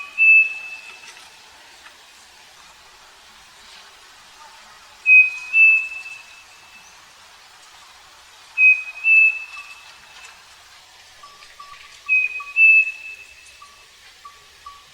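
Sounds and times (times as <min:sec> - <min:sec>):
bird two-note whistled song: 0:00.0 - 0:01.0, 0:05.1 - 0:06.9, 0:08.6 - 0:09.8, 0:11.6 - 0:14.9.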